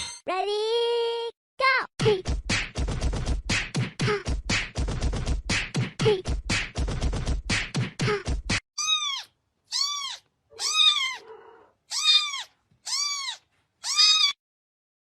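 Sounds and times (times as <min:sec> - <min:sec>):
cat meowing: 0:08.8 - 0:14.4.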